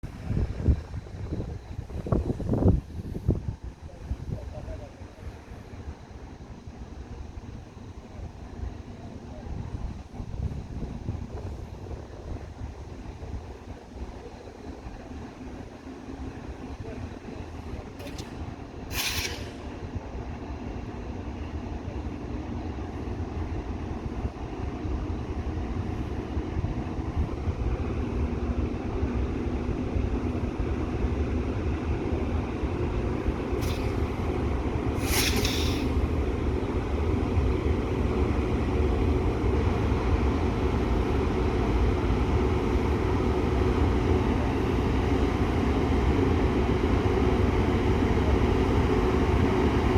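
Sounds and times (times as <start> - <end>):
freight train rumbling: 0.0 - 49.9
air hiss bursts: 18.9 - 19.8, 33.6 - 34.2, 34.9 - 36.1.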